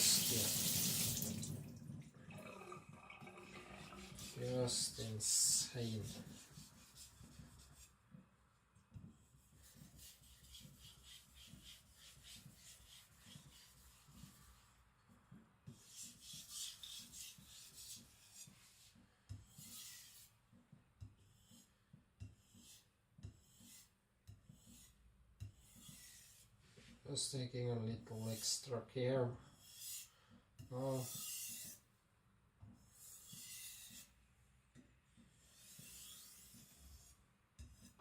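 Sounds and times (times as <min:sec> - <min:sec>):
knife rasping on whetstone: 0:03.8 - 0:07.9, 0:09.6 - 0:14.7, 0:15.8 - 0:20.4, 0:21.2 - 0:26.6, 0:29.5 - 0:31.9, 0:32.9 - 0:34.2, 0:35.1 - 0:38.0.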